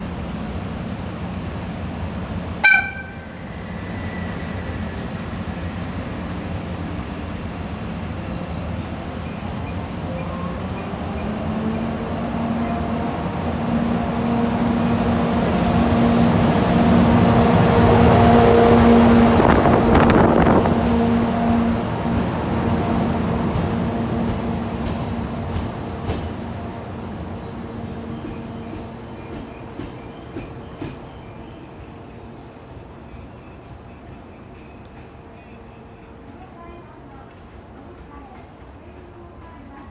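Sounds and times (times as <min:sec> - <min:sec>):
electric locomotive hum: 0:00.0 - 0:36.5
locomotive whistle toot: 0:02.6 - 0:03.3.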